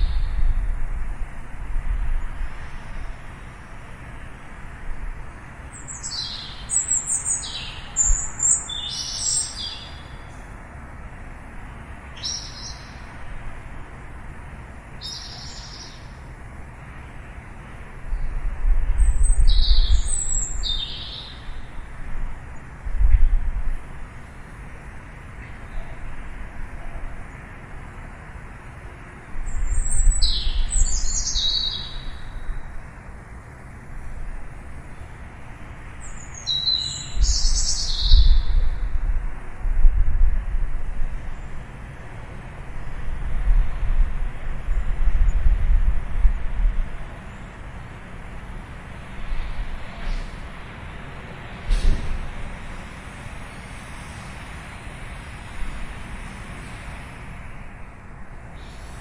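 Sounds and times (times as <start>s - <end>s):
low background noise: 0.0s - 59.0s
small birds chirping: 5.6s - 10.5s, 12.1s - 13.2s, 14.9s - 16.3s, 18.1s - 21.9s, 29.4s - 32.6s, 36.0s - 38.8s
steady low rumble: 21.4s - 27.3s, 37.0s - 58.5s.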